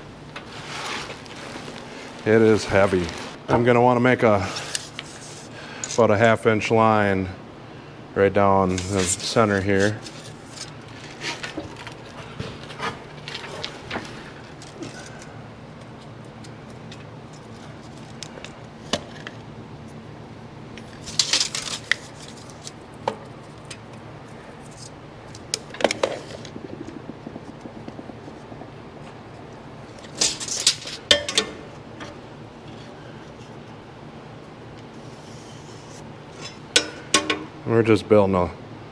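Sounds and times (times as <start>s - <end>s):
low shop hum: 0.0s - 38.9s
loud scraping bursts: 0.4s - 3.4s
hand tools clinking on steel plate: 30.1s - 32.2s, 36.4s - 37.6s.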